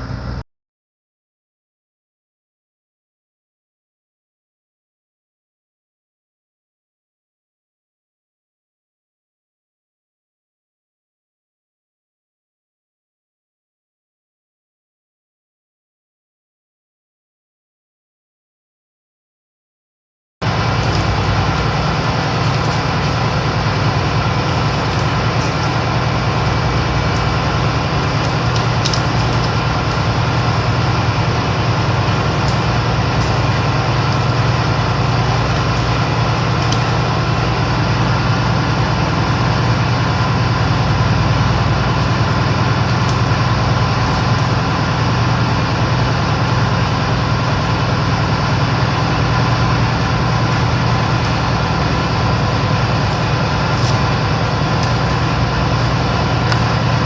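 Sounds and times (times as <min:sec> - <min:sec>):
ship machinery droning: 0:00.0 - 0:00.4, 0:20.4 - 0:57.0.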